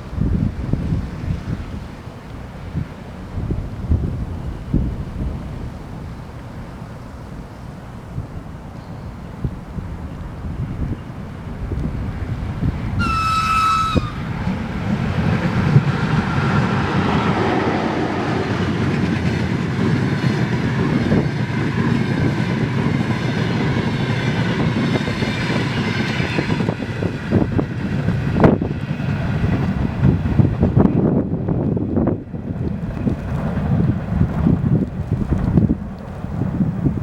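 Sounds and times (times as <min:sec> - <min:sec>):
train wheels rumbling and clacking: 0:09.4 - 0:36.7
high-pitched train horn: 0:12.9 - 0:15.9.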